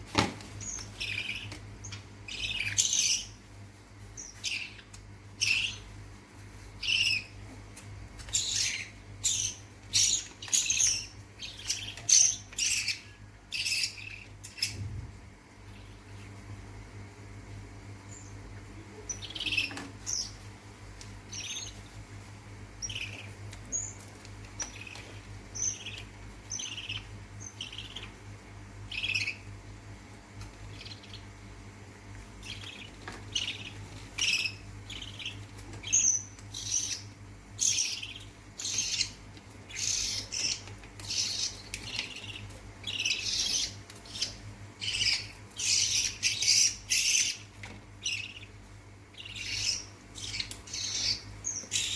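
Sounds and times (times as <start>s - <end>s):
bird chicks chirping: 0.5s - 6.0s, 6.6s - 51.9s
low hum: 13.5s - 20.7s.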